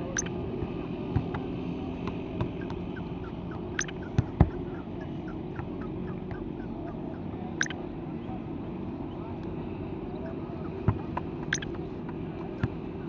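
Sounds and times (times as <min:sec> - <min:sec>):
birds chirping and calling: 0:00.0 - 0:00.4, 0:01.9 - 0:08.4, 0:10.0 - 0:13.0
steady low hum: 0:00.0 - 0:13.0.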